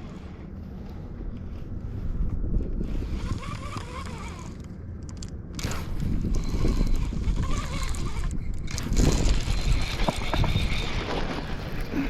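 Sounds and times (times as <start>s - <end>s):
wind buffeting microphone: 0.0s - 4.6s, 5.5s - 12.0s
light mechanical clicking: 3.2s - 9.4s.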